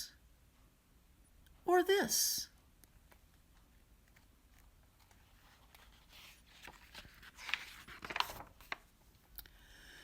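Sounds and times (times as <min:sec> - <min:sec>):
book page turning: 0:04.0 - 0:09.0.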